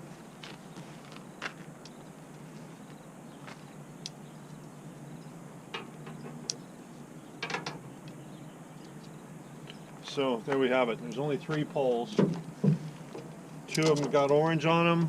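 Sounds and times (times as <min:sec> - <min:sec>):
tent poles clicking together: 0:13.1 - 0:14.4.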